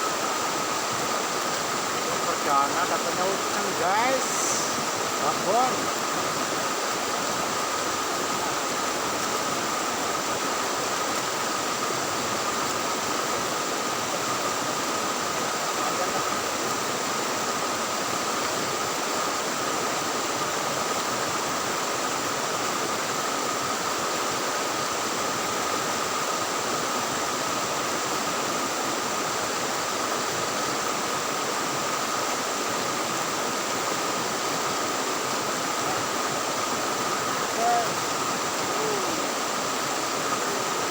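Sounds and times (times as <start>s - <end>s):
thin steady tone: 0.0s - 9.1s
river water rushing: 0.0s - 40.9s.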